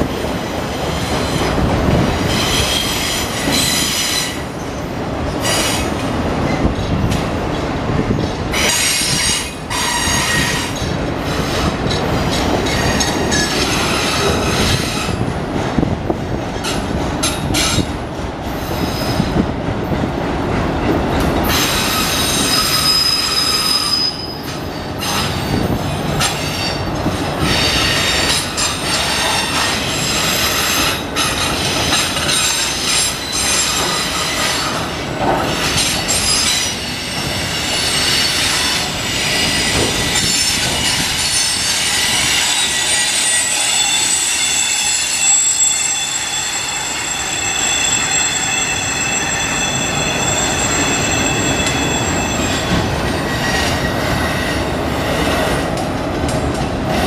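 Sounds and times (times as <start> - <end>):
train wheels rumbling on rails: 0.0 - 57.0
steel wheels squealing: 21.5 - 54.6.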